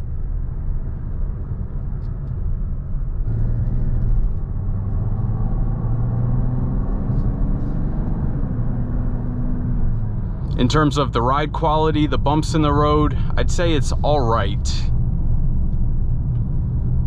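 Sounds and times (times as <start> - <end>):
road rumble: 0.0 - 17.0
car engine pulling: 3.2 - 14.9.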